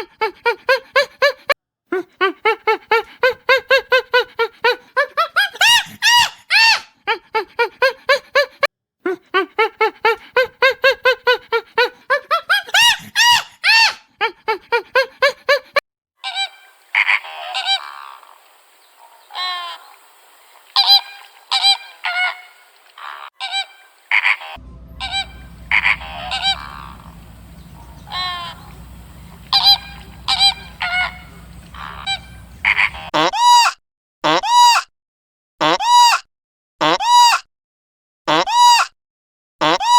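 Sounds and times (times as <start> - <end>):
geese honking: 20.7 - 33.1
low steady hum: 24.6 - 33.1.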